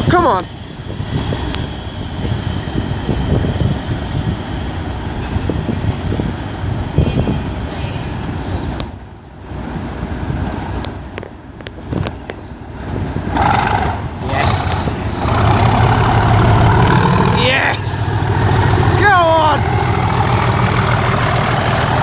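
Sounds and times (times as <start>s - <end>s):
diesel locomotive engine rumbling: 0.0s - 22.0s
station noise: 14.2s - 22.0s.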